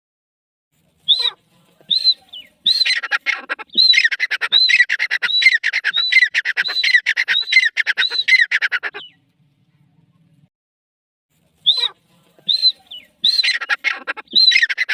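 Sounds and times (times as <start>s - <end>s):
francolin calling: 11.7s - 14.9s.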